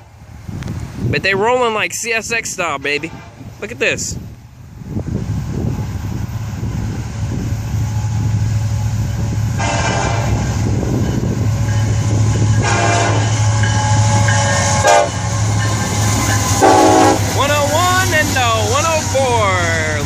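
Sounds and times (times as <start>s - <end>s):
diesel locomotive rumbling past: 0.0s - 20.0s
train air horn blasts: 9.6s - 10.5s, 12.4s - 15.6s, 16.5s - 17.4s.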